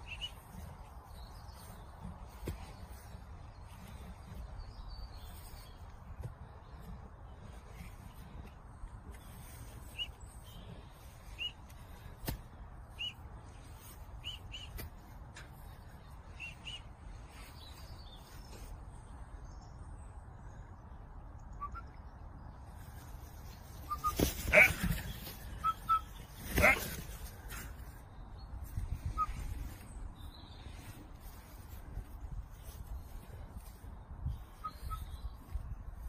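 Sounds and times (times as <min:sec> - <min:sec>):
short high bird chirps: 0:34.6 - 0:35.2.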